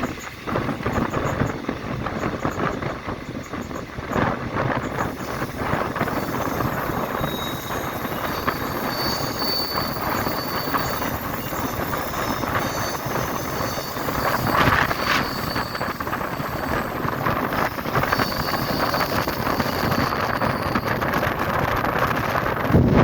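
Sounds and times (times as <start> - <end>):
train rumble: 0.0 - 23.0
wheels clattering over rails: 0.0 - 23.0
wind buffeting microphone: 0.0 - 23.0
thin high squeal: 4.9 - 22.5.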